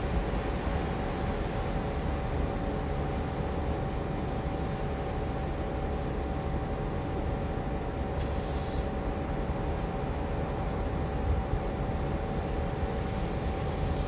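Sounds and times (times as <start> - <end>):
steady hum: 0.0 - 14.0
train rumbling: 0.0 - 14.0
brief hiss: 8.2 - 9.0.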